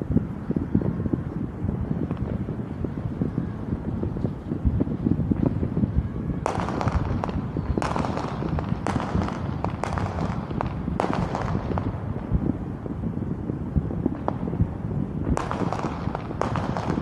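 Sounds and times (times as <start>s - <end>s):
low background rumble: 0.0s - 17.0s
fireworks bangs with crackle: 4.6s - 12.6s, 13.8s - 17.0s.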